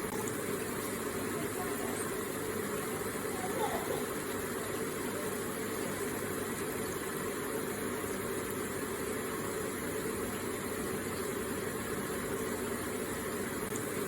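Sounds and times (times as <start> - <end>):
water running and splashing: 0.0 - 14.0.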